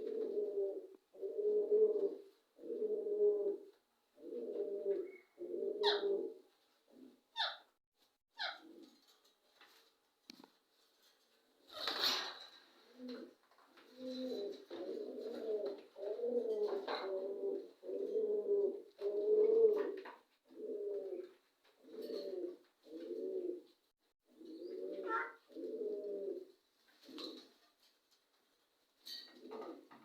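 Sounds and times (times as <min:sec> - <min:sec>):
pigeon cooing: 0:00.0 - 0:07.6, 0:08.4 - 0:09.0, 0:12.8 - 0:23.7, 0:24.3 - 0:27.6.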